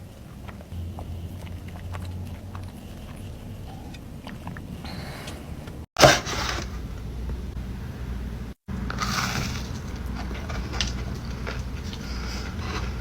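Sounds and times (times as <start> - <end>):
person chewing cookie: 0.0 - 5.9, 8.8 - 13.0
low hum: 6.5 - 13.0.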